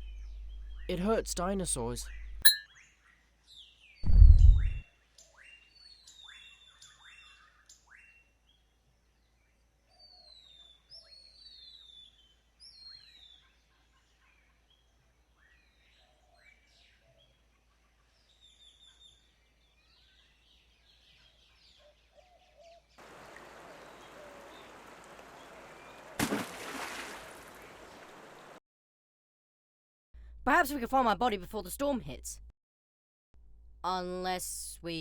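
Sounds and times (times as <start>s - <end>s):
birds chirping: 23.0s - 28.6s.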